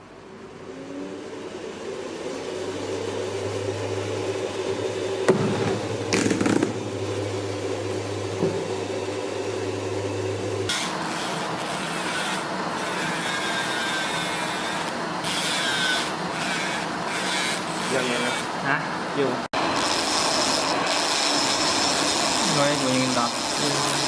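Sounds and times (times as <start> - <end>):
vacuum fan motor humming: 0.0 - 24.0
sharp knocks: 5.3 - 6.8.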